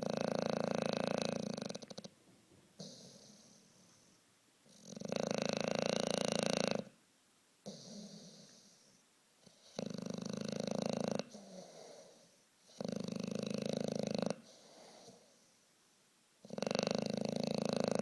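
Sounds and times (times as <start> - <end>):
dog snoring: 0.0 - 2.1, 2.8 - 3.8, 4.6 - 7.0, 7.6 - 15.5, 16.4 - 18.0
dog breathing softly: 2.8 - 4.8, 7.6 - 10.2, 11.2 - 13.0, 14.3 - 16.0.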